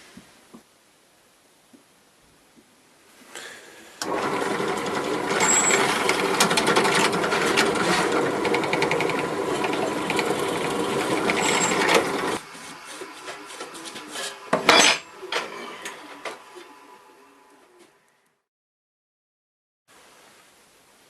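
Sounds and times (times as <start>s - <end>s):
power tool motor running: 4.0s - 12.4s.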